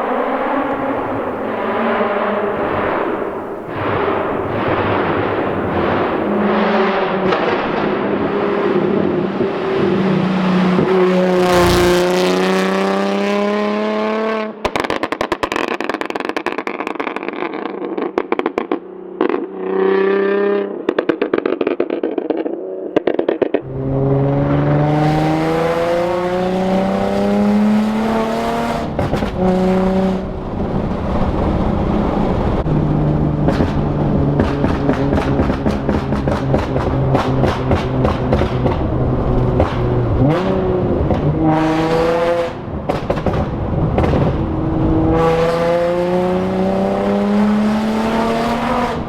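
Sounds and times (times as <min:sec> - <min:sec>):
car engine revving: 0:00.0 - 0:49.0
exhaust crackling and popping: 0:02.6 - 0:09.5, 0:14.6 - 0:19.7, 0:20.8 - 0:23.8, 0:28.8 - 0:41.5, 0:42.6 - 0:45.1.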